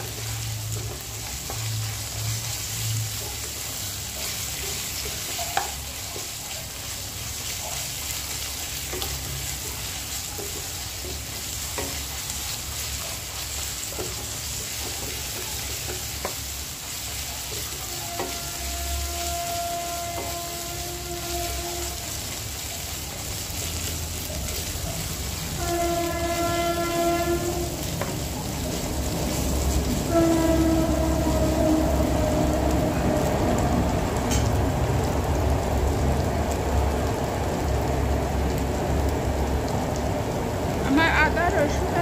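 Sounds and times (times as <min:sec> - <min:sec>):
wooden spatula stirring: 0:00.0 - 0:31.8
onions sizzling in oil: 0:00.0 - 0:42.0
steady horn-like tone: 0:17.8 - 0:22.3, 0:25.4 - 0:28.3, 0:29.1 - 0:33.0.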